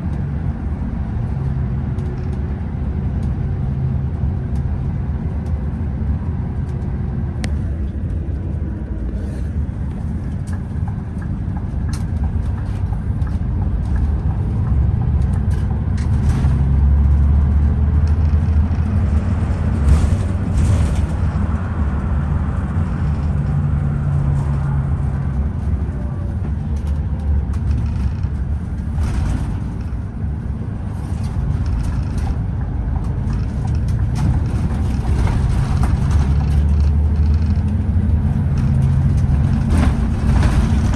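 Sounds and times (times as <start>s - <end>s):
coach engine and road rumble: 0.0s - 40.9s
light clicks and rattles: 25.6s - 30.1s.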